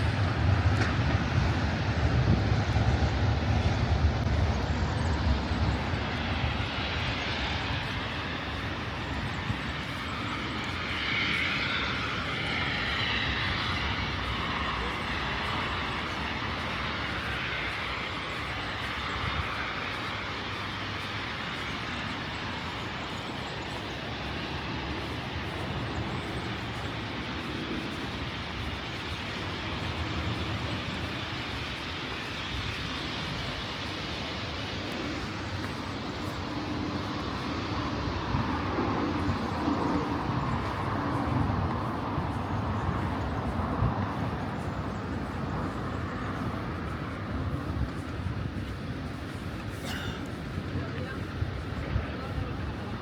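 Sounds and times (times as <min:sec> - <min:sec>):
city traffic noise: 0:00.0 - 0:53.0.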